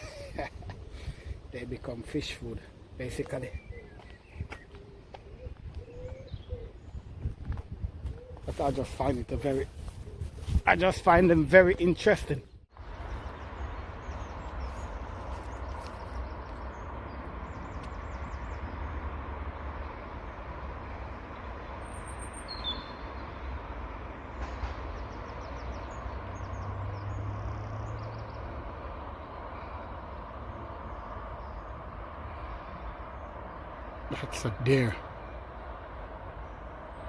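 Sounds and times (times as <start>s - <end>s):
high bird chirps: 21.9s - 23.4s.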